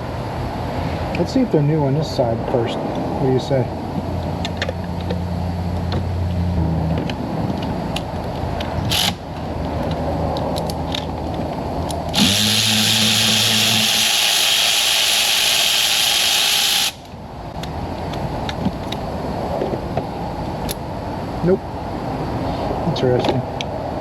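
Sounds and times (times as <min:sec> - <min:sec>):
cordless power tool whirring: 0:08.8 - 0:09.4, 0:12.1 - 0:17.1.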